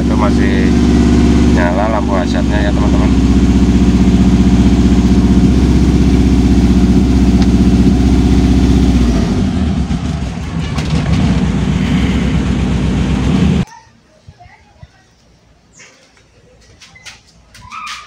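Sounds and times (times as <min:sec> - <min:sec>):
car engine idling: 0:00.0 - 0:13.7.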